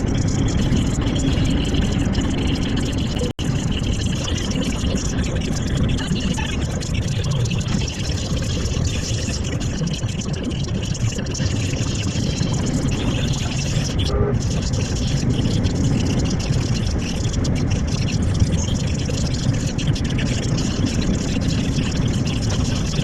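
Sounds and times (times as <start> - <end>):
road and tyre noise: 0.0 - 23.0
lorry engine rumble: 12.4 - 22.7.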